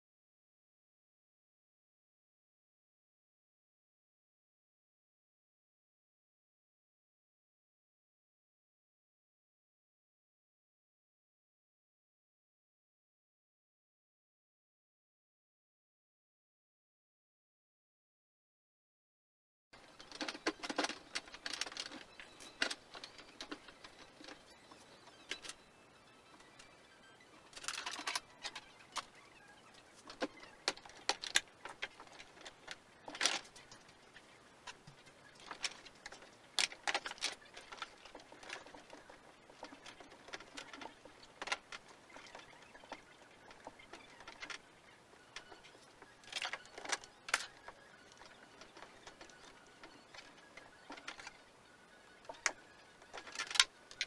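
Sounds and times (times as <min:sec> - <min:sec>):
metal parts clattering: 0:27.5 - 0:29.1.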